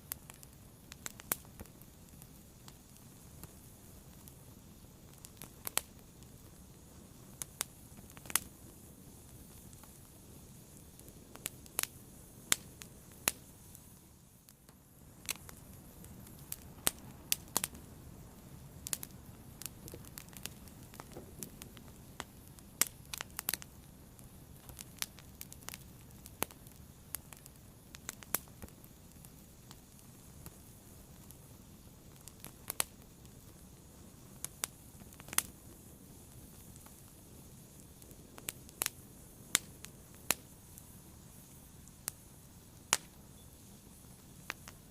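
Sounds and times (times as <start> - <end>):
fire crackling and popping: 0.0 - 44.9.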